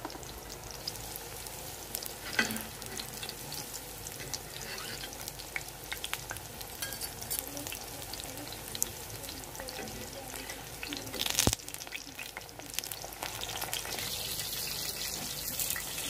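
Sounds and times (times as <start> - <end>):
meat sizzling in hot oil: 0.0 - 16.0
metal spatula scraping a pan: 4.2 - 5.3.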